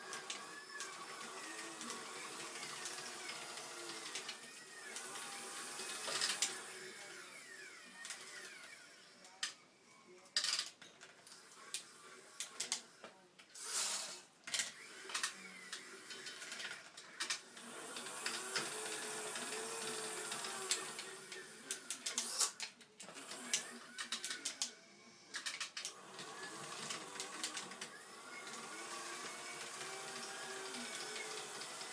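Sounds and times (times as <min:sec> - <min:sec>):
small electric motors whining: 0:00.0 - 0:09.7, 0:11.2 - 0:31.9
clicks: 0:14.4 - 0:26.0.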